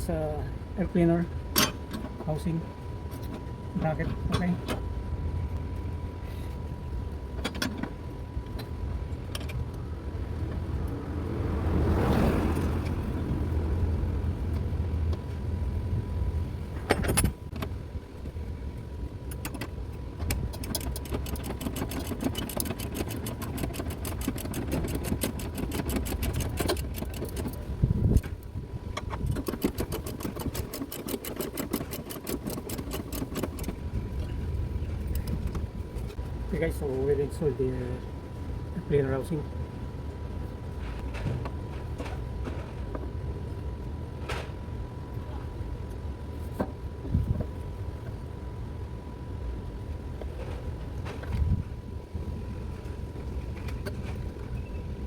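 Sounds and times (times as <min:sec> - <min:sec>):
steady low hum: 0:00.0 - 0:55.0
hand ratchet clicking: 0:20.5 - 0:27.6, 0:29.2 - 0:33.8.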